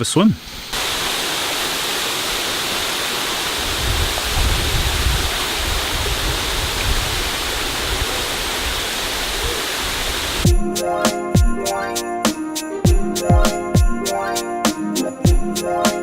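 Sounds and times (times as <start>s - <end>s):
waterfall rushing: 0.8s - 10.5s
music: 10.4s - 16.0s.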